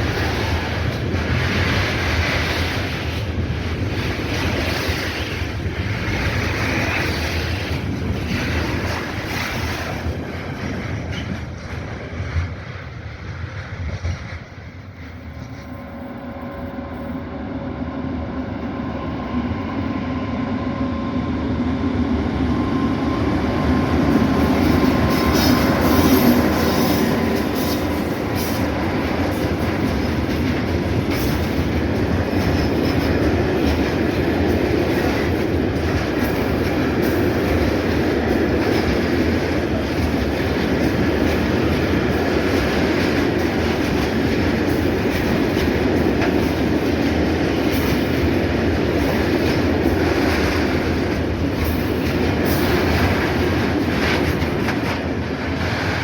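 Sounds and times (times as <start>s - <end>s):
locomotive humming whine: 11.5s - 56.0s
wheels clattering over rail joints: 24.1s - 56.0s.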